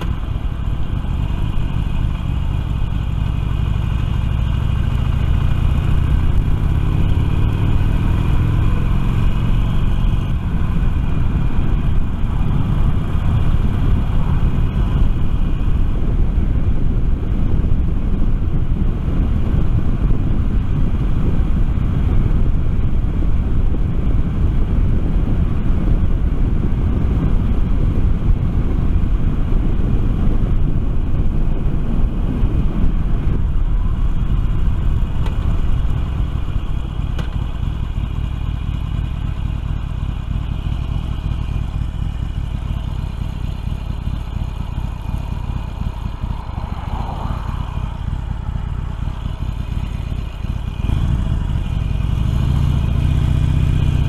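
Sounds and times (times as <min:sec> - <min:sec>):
motorcycle engine running: 0:00.0 - 0:54.0
rushing air: 0:43.4 - 0:52.3.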